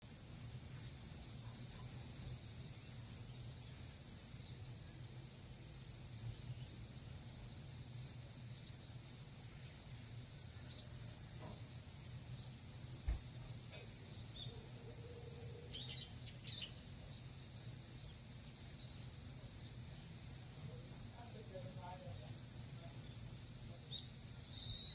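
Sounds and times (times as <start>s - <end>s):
insects shrilling: 23.8s - 24.9s.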